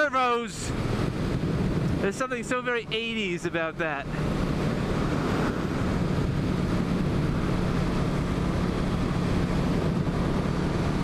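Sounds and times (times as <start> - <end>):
wind rushing over microphone: 0.0 - 11.0
motorcycle engine cruising: 3.9 - 11.0.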